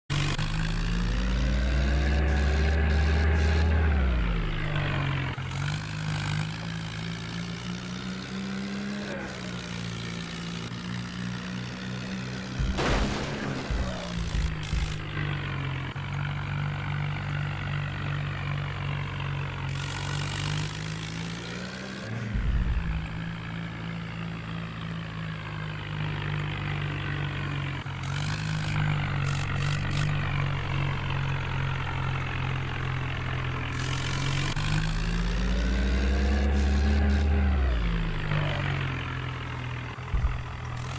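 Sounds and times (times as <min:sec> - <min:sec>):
tractor engine revving: 0:00.0 - 0:40.9.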